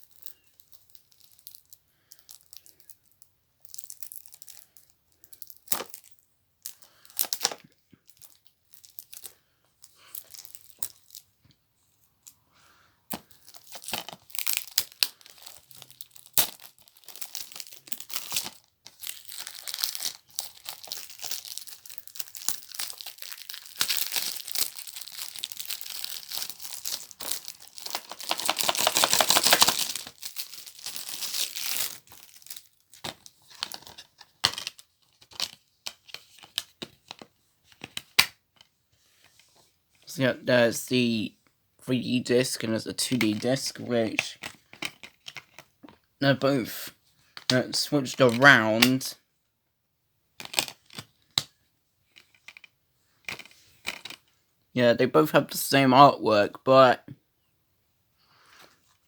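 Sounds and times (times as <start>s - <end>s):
plastic wrapping crinkling: 0.0s - 6.1s, 13.1s - 37.9s.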